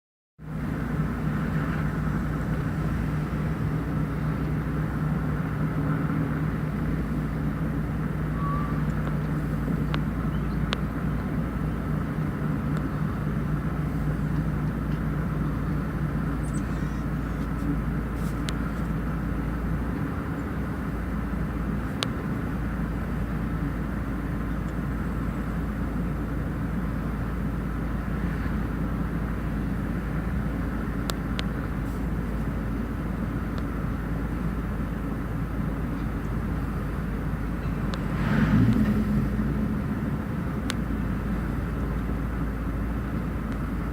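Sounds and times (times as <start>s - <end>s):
engine rumble with droning hum: 0.4s - 43.9s.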